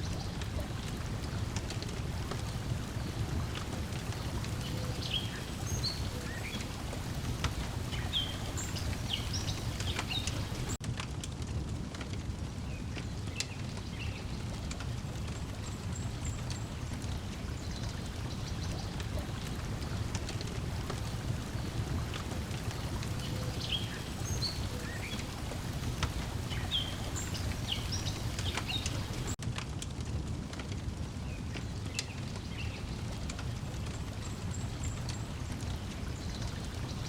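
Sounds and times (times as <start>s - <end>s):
water lapping at shore: 0.0s - 10.8s, 13.7s - 29.4s, 31.8s - 37.0s
wood fire crackling: 0.0s - 37.0s
birds chirping: 0.1s - 10.8s, 19.1s - 29.4s.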